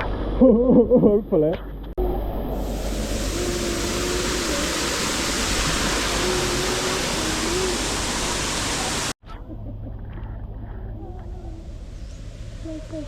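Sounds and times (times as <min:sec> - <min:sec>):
waterfall roaring: 0:02.0 - 0:09.2.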